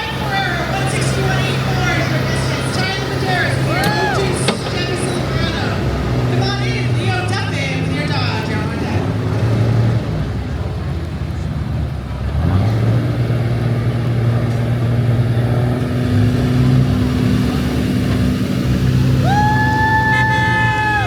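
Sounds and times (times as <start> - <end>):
horn sounding: 0.0 - 9.2
truck engine running hard: 0.0 - 21.0.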